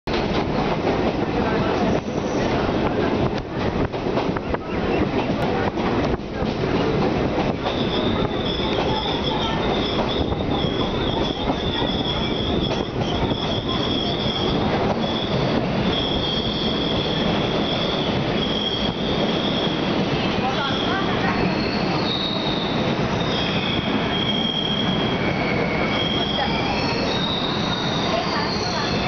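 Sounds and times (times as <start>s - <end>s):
train wheels rumbling and rattling: 0.1s - 29.0s
high-pitched metal squeal: 20.7s - 29.0s.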